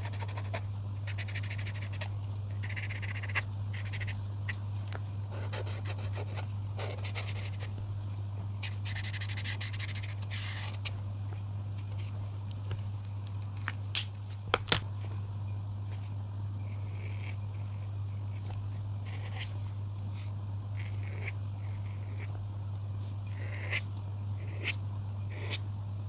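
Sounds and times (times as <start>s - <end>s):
colouring strokes scratching on paper: 0.0s - 7.8s, 8.6s - 11.0s, 16.7s - 22.4s, 23.0s - 25.6s
steady low hum: 0.0s - 26.0s.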